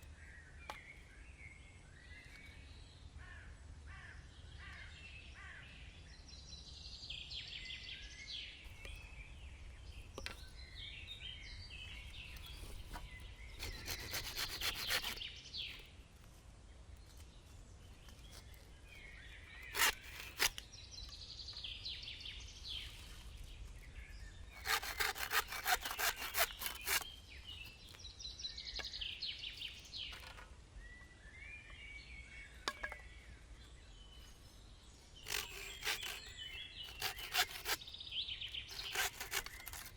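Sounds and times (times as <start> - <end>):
hand saw cutting wood: 12.3 - 15.7, 19.5 - 20.6, 24.5 - 27.2, 35.2 - 39.9
birds chirping: 17.1 - 39.9.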